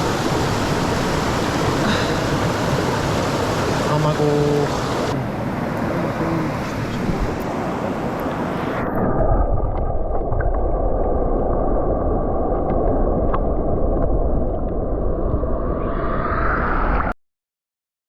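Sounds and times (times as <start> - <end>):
rushing mountain stream: 0.0 - 9.2
muffled underwater rush: 0.0 - 17.2
faint clicks underwater: 12.5 - 15.4.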